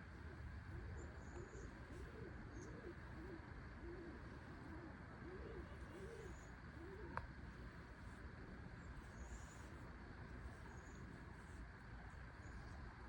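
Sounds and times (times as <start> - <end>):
bird cooing softly: 0.0 - 7.7.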